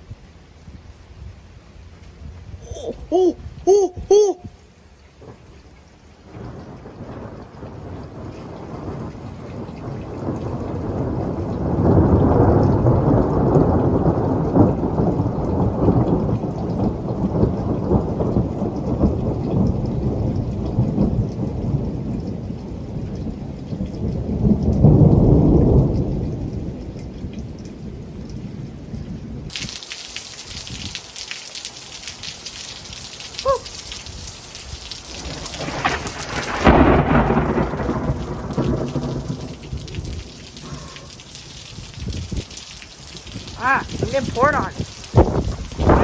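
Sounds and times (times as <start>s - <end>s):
rain: 0.0s - 46.0s
thunder rumbling: 6.3s - 28.3s, 33.4s - 46.0s.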